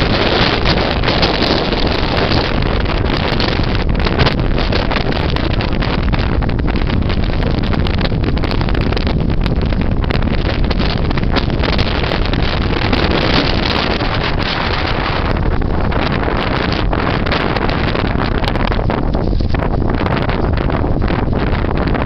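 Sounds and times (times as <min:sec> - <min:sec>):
strong wind on microphone: 0:00.0 - 0:22.0.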